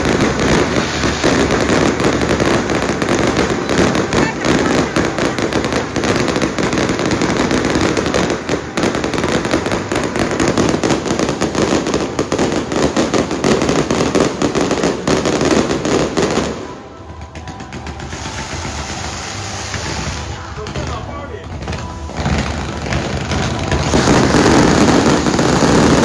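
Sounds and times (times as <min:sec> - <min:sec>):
fireworks crackling and banging: 0:00.0 - 0:26.0.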